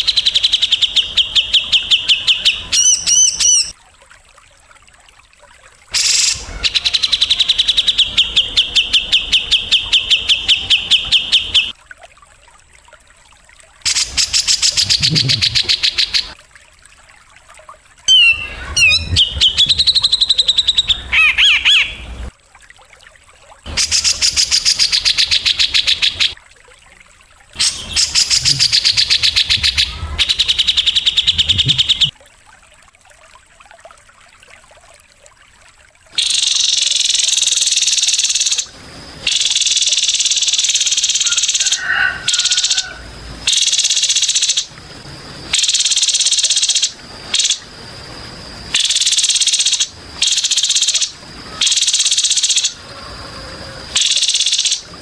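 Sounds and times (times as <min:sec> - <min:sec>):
gliding bird whistles: 0:18.1 - 0:22.0.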